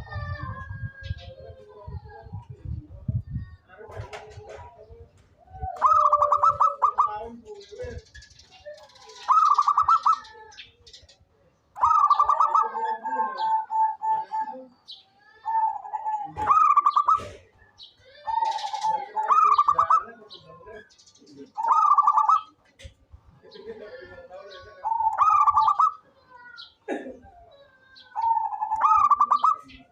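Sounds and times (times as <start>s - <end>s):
dove cooing: 5.4s - 7.5s, 9.1s - 10.4s, 11.8s - 20.3s, 21.5s - 22.6s, 24.7s - 26.0s, 28.2s - 29.9s.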